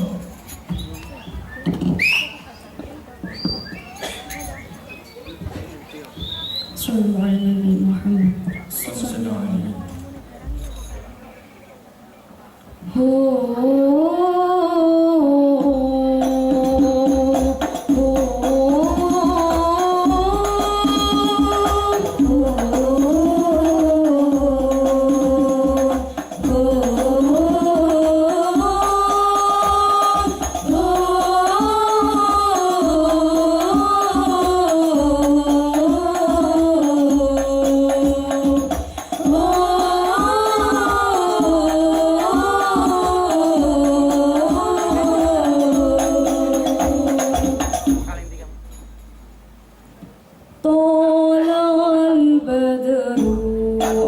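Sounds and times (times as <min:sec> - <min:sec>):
frame drums: 0:09.8 - 0:11.3, 0:15.6 - 0:50.2, 0:53.2 - 0:54.0
solo voice singing: 0:12.8 - 0:47.8, 0:50.6 - 0:54.0.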